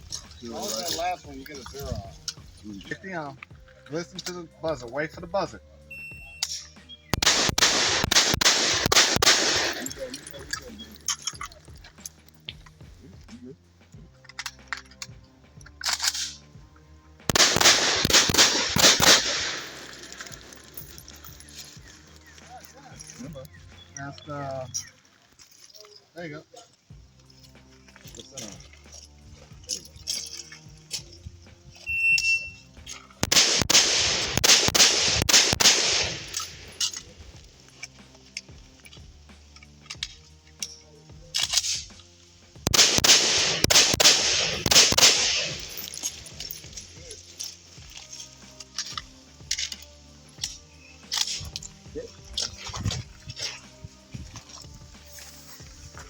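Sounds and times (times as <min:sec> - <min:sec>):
rifle shots echoing: 0:06.5 - 0:10.9, 0:17.3 - 0:21.5, 0:33.2 - 0:37.2, 0:42.6 - 0:46.9.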